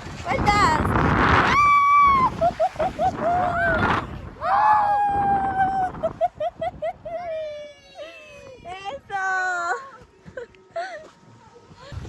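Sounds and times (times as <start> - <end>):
people screaming: 1.5 - 2.5, 3.2 - 6.0.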